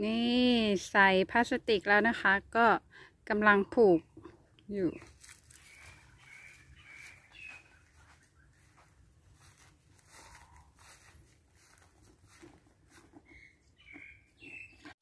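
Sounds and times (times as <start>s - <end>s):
faint bird chirps: 4.8s - 8.8s, 13.3s - 15.0s.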